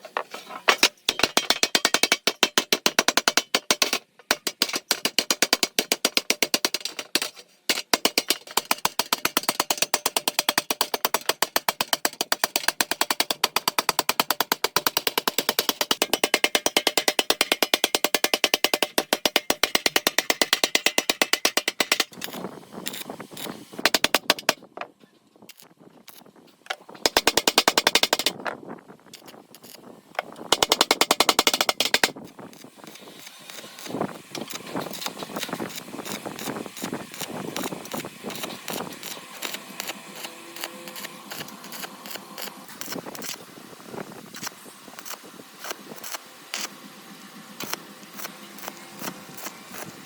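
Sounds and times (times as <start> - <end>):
hand tools tapping on metal: 0.1 - 23.0, 23.8 - 24.7, 25.5 - 28.5, 29.2 - 41.9
power tool hammering rapidly: 1.1 - 24.6, 27.0 - 28.4, 30.2 - 43.4, 47.6 - 50.0.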